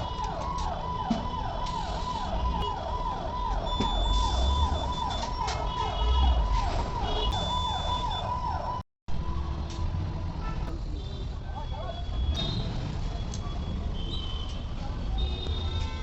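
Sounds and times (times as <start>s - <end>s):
electronic siren tone: 0.0s - 8.8s.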